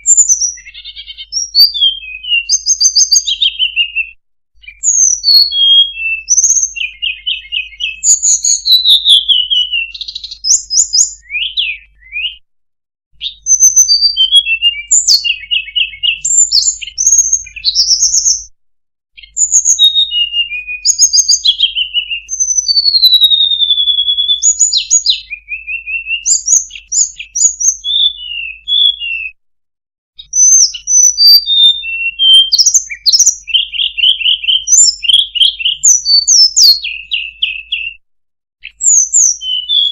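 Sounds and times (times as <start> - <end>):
recorded songbird chirps and trills: 0.0 - 12.5, 13.1 - 18.6, 19.2 - 29.4, 30.2 - 39.9.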